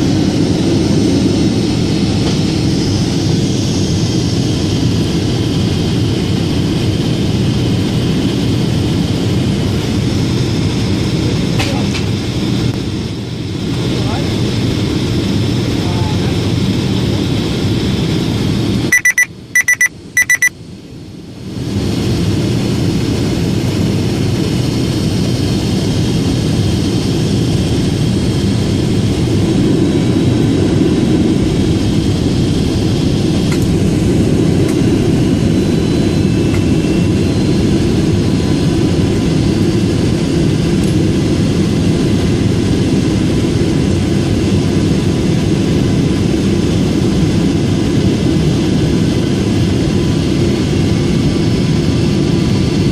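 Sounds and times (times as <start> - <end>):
airplane cabin engine drone: 0.0 - 52.9
short electronic beeps: 18.9 - 20.6.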